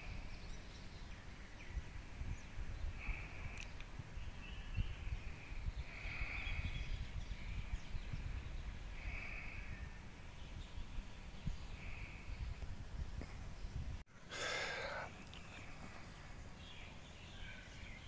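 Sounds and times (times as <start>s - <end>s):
short bird calls: 14.2s - 18.0s.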